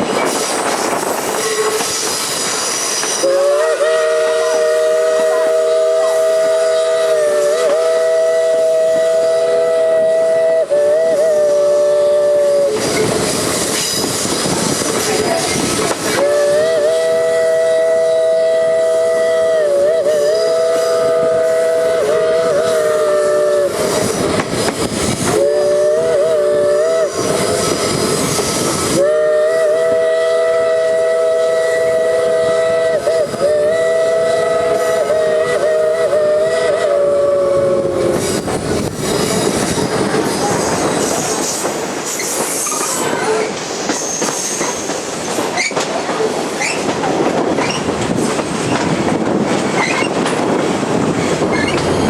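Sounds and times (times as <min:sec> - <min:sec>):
train rumble and clickety-clack: 0:00.0 - 0:52.0
steam locomotive chime whistle: 0:01.3 - 0:14.4, 0:15.1 - 0:38.4.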